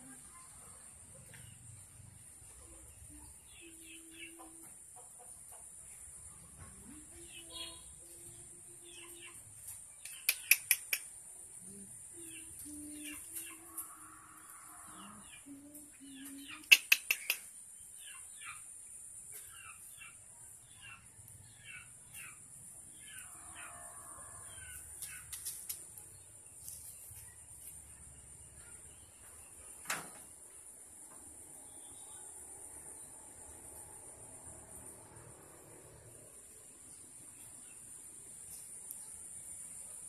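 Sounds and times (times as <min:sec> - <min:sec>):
small birds chirping: 0:06.6 - 0:13.8, 0:15.0 - 0:23.3, 0:24.5 - 0:29.9.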